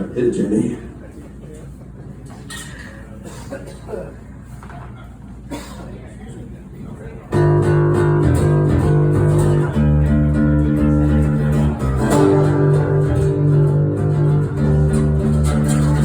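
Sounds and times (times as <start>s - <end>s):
acoustic guitar chords: 7.3s - 16.0s
bass guitar: 7.3s - 16.0s.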